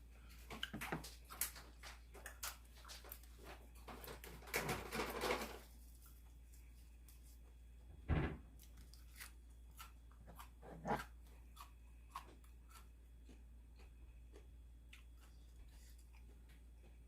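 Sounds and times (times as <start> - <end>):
person chewing and crunching: 0.2 - 4.4, 8.6 - 17.0.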